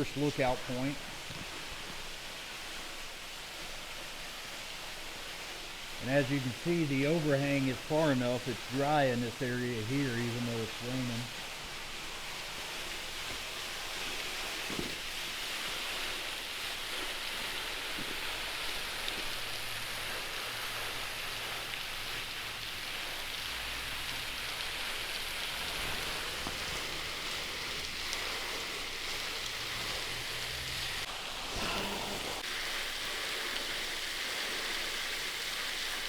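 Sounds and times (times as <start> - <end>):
rain and waterfall hiss: 0.0 - 36.0
faint drips: 6.0 - 32.5.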